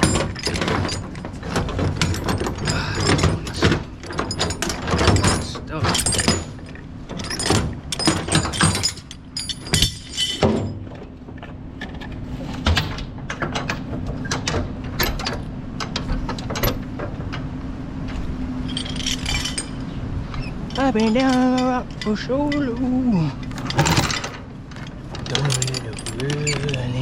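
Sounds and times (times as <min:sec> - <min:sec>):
steel chain clanking: 0:00.0 - 0:11.4, 0:18.6 - 0:27.0
steady low hum: 0:00.0 - 0:27.0.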